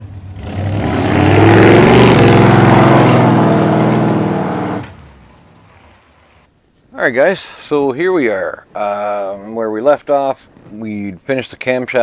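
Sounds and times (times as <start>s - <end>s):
vehicle engine revving: 0.0s - 6.5s.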